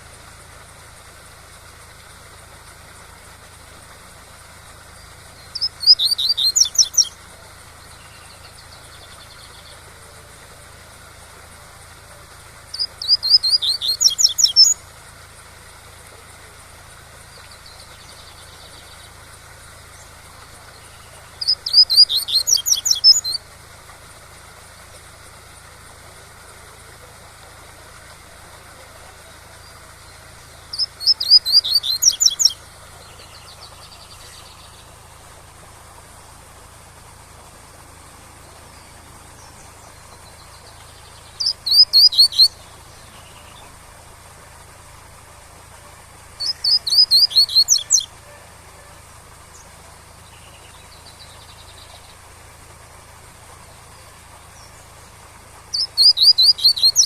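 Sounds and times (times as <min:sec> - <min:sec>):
bird singing rapid high notes: 0:04.9 - 0:09.9, 0:12.7 - 0:14.8, 0:20.0 - 0:23.5, 0:28.7 - 0:35.1, 0:38.5 - 0:43.7, 0:46.2 - 0:48.9, 0:55.6 - 0:57.0.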